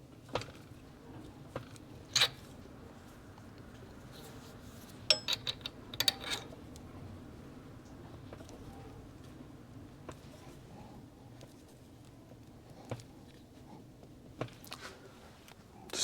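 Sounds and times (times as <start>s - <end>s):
metal parts clinking: 2.1s - 2.4s, 5.0s - 6.6s.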